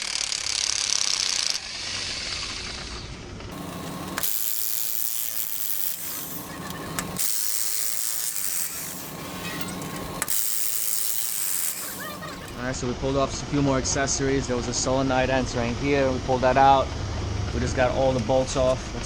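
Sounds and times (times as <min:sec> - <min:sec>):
hand tools ratcheting on metal: 0:03.5 - 0:12.6.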